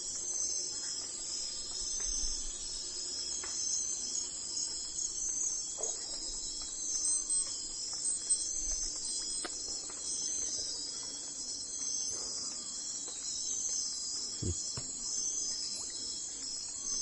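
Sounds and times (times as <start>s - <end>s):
insect chorus trilling: 14.4s - 17.0s.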